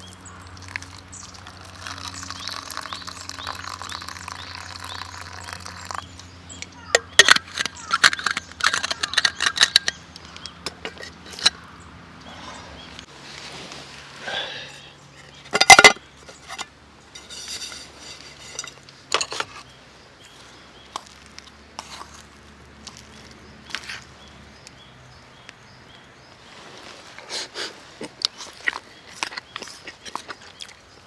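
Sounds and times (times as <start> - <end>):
cookware clatter: 6.9 - 11.6, 15.5 - 19.6
metal cookware knocks and clinks: 15.5 - 16.6, 17.2 - 19.5.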